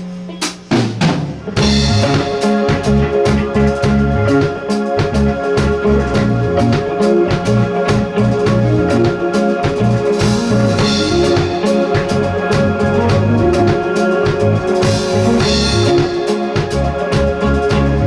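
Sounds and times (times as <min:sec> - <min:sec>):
rock band playing live: 0:00.3 - 0:18.0
cymbal crash: 0:01.6 - 0:03.3.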